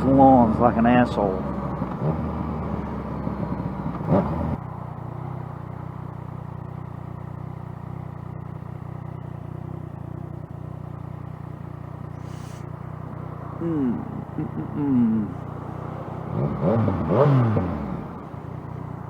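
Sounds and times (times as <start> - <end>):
motorcycle engine running: 0.0 - 19.0
brief hiss: 12.2 - 12.7.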